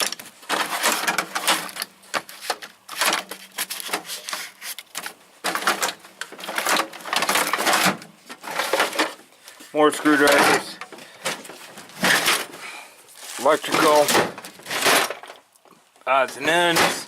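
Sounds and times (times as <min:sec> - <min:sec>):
hand tools clattering in drawer: 0:13.6 - 0:15.3.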